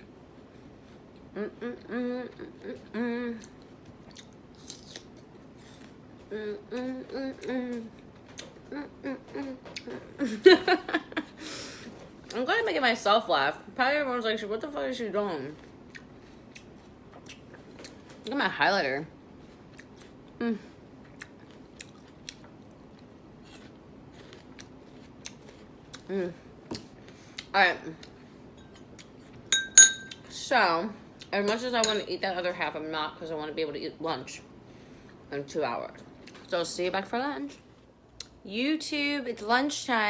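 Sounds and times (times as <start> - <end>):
short vocal hum: 1.3 - 3.5
woman humming: 1.3 - 3.6, 6.2 - 8.0, 8.6 - 10.3, 20.4 - 20.8
person chewing: 3.4 - 6.0, 15.7 - 18.1, 19.4 - 20.4, 21.0 - 26.1.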